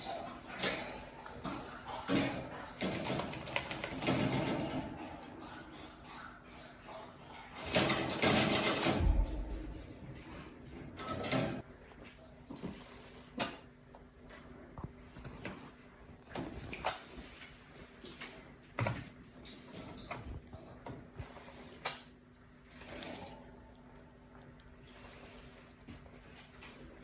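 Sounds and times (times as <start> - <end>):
faint low hum: 8.7 - 13.1.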